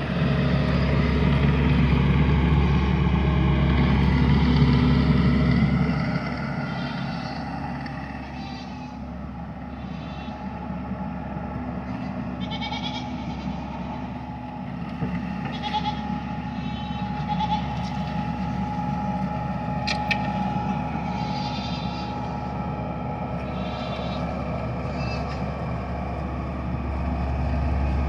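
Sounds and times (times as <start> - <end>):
engine humming: 0.0 - 28.0
goats bleating: 6.6 - 7.4, 8.2 - 9.0, 9.7 - 10.6, 11.8 - 14.2, 15.4 - 18.0, 20.7 - 22.6, 23.4 - 25.5.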